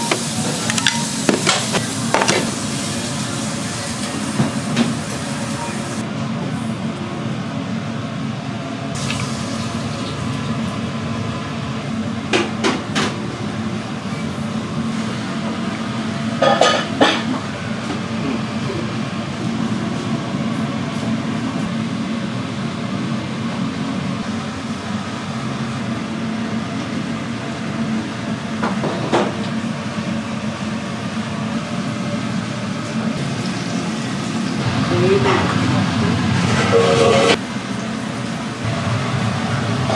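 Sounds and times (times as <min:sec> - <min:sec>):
metal pans and utensils clattering: 0:00.0 - 0:02.6
kitchen hum: 0:00.0 - 0:39.9.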